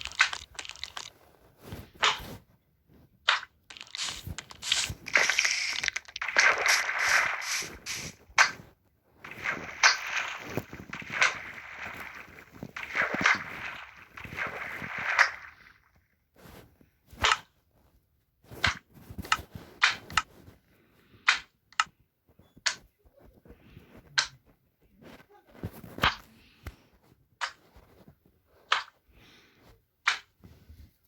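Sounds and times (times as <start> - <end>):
rustling or scraping: 0.0 - 15.0.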